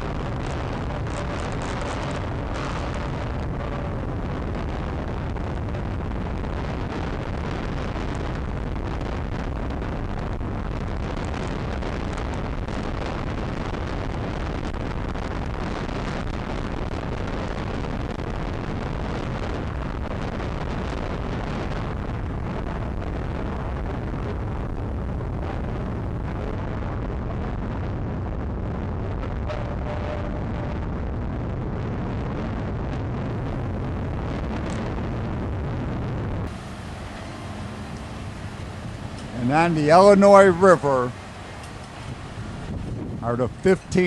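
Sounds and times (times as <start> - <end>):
motorcycle running: 0.0 - 6.2, 36.2 - 44.0
wind on microphone: 0.0 - 44.0.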